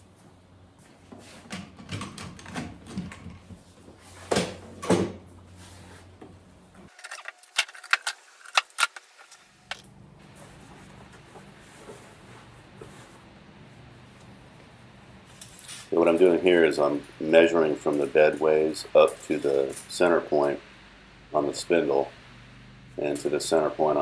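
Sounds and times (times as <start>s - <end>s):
faint steady hum: 0.0s - 24.0s
knocks and clunks of handling: 1.1s - 5.2s.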